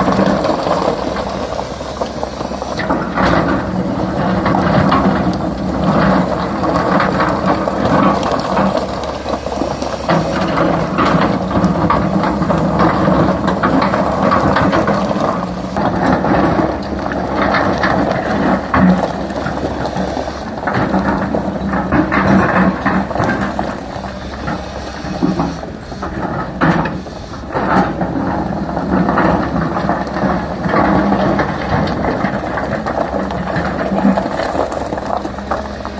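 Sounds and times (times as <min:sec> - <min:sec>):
rock and bucket knocking: 0:00.0 - 0:25.4, 0:26.1 - 0:35.9
excavator diesel engine running: 0:00.0 - 0:35.9.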